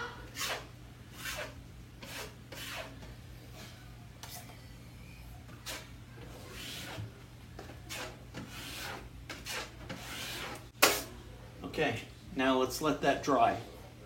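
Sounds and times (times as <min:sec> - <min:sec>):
drywall knife scraping compound: 0:00.3 - 0:03.1, 0:05.5 - 0:11.1.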